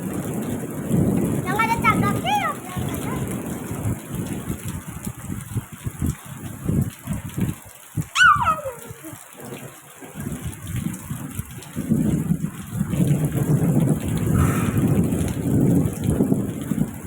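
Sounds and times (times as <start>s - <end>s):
heavy rain: 0.0s - 17.0s
thunder rumbling: 0.0s - 17.0s.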